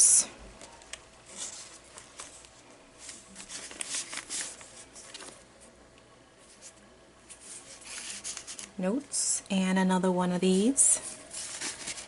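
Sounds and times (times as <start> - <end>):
paper pages rustling: 0.6 - 5.7, 6.4 - 8.8, 11.0 - 12.0.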